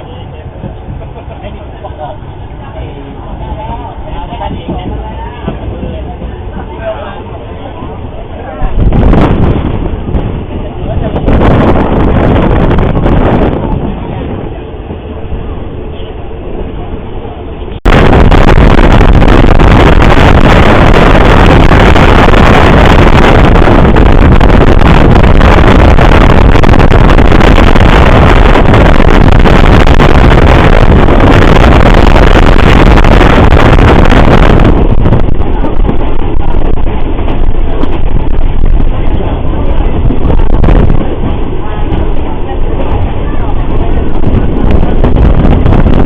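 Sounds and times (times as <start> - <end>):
wind noise: 0.0 - 46.0.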